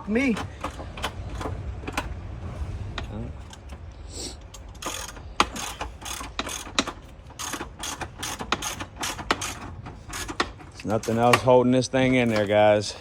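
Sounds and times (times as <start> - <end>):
hand ratchet clicking: 4.5 - 11.5.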